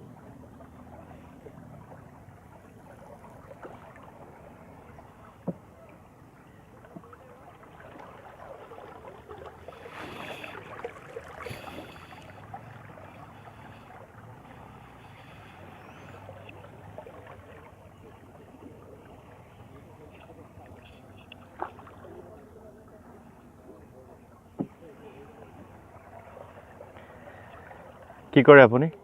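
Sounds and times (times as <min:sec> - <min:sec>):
water lapping against boat: 0:00.0 - 0:29.0
water splashing: 0:00.0 - 0:29.0
sharp knock on boat: 0:24.6 - 0:24.8.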